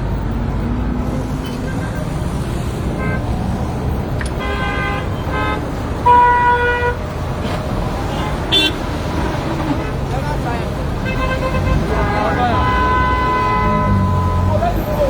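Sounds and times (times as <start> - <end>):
road traffic rumbling: 0.0 - 15.0
car horns tooting: 4.2 - 7.1, 8.0 - 10.3, 11.0 - 15.0.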